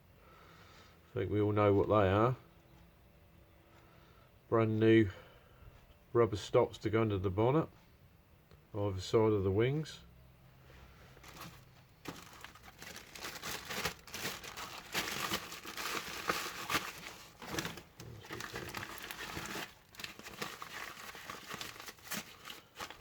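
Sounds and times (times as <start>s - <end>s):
plastic bags crinkling: 11.2s - 23.0s.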